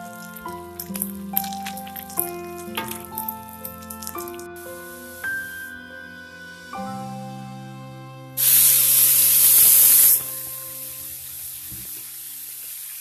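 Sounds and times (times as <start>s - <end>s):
background music: 0.0s - 13.0s
leaves sizzling in hot oil: 8.4s - 13.0s.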